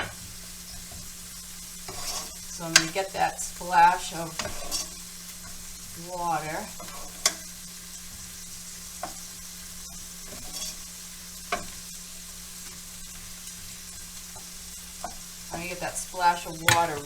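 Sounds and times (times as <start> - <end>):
onions and bacon sizzling: 0.0 - 17.0
utensil clicking against pan: 16.6 - 17.0.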